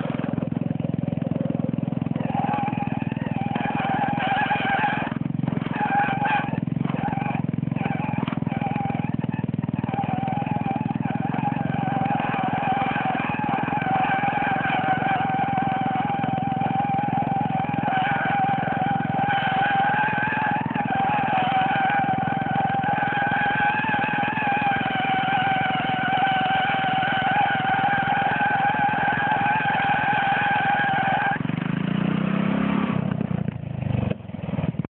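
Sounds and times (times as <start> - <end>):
lawnmower engine revving: 0.0 - 34.8
tires spinning on ground: 0.0 - 34.9.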